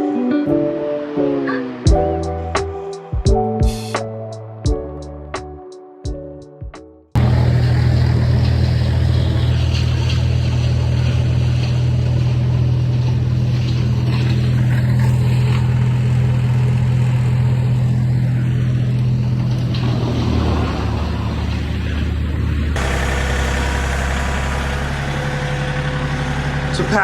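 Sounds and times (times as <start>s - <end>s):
heavy equipment engine running: 7.2s - 27.0s.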